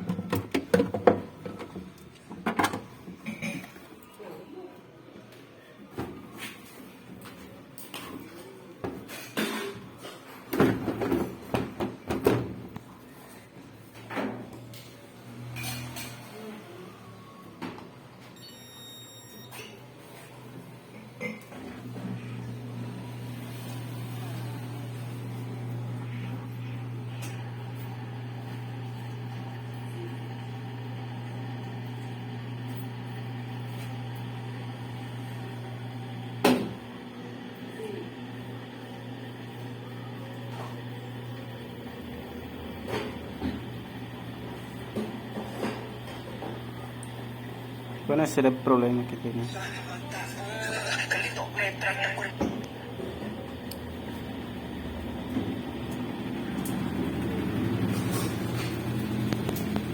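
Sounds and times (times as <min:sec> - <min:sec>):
washing machine motor hum: 0:21.9 - 0:51.5, 0:52.2 - 0:59.9.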